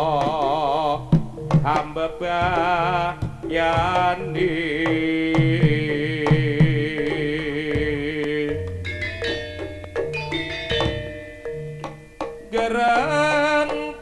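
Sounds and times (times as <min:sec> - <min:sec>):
bronze metallophones ringing: 0:00.0 - 0:14.0
drum strokes: 0:00.0 - 0:14.0
wavering melodic line: 0:07.0 - 0:14.0.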